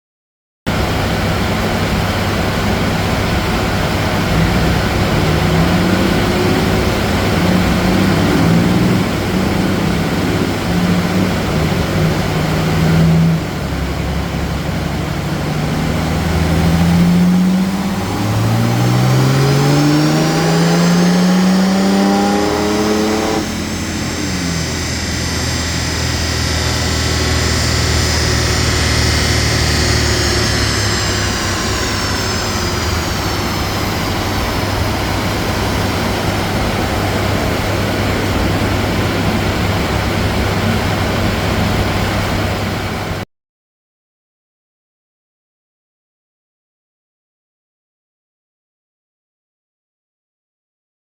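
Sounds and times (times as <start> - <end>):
diesel engine accelerating hard: 0.7 - 43.2.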